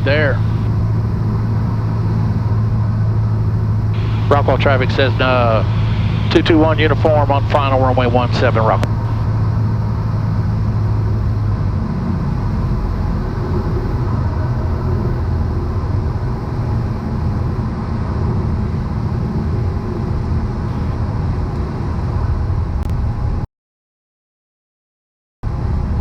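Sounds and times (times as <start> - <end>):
aircraft engine and propeller droning: 0.0 - 23.4.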